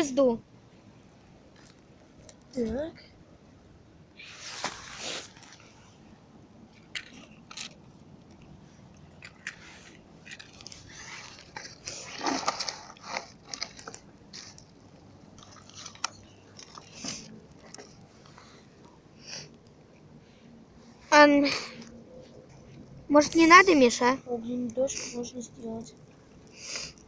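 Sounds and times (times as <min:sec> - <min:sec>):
campfire crackling and crunching: 0:06.7 - 0:19.8.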